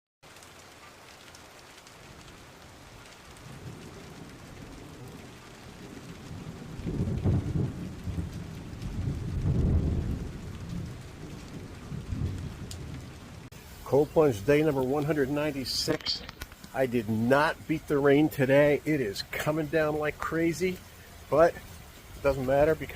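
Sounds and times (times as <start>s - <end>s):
heavy rain: 0.2s - 22.9s
low rumble of thunder: 2.0s - 15.6s.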